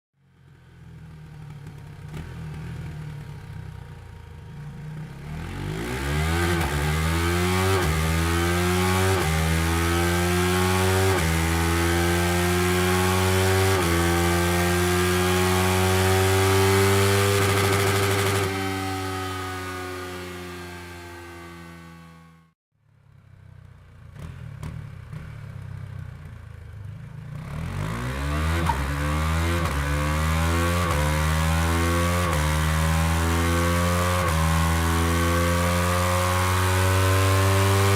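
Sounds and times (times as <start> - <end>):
motorcycle engine revving through gears: 0.3 - 22.6, 23.7 - 37.9.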